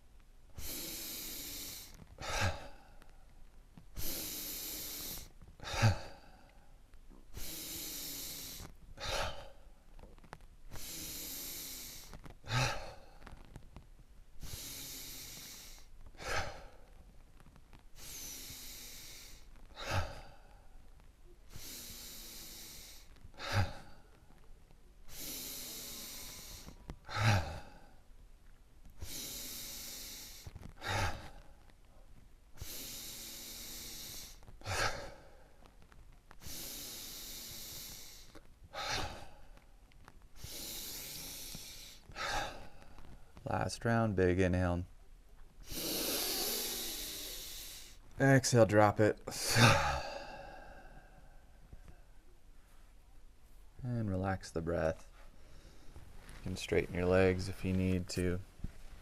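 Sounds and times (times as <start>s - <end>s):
person breathing in hiss: 0.6s - 2.7s, 4.0s - 6.3s, 7.3s - 9.5s, 10.7s - 13.4s, 14.4s - 16.8s, 18.0s - 20.3s, 21.5s - 23.9s, 25.1s - 27.7s, 29.0s - 31.4s, 32.6s - 35.5s, 36.4s - 39.4s, 40.4s - 43.1s, 45.6s - 48.0s
person sighing out-breath: 49.4s - 51.4s.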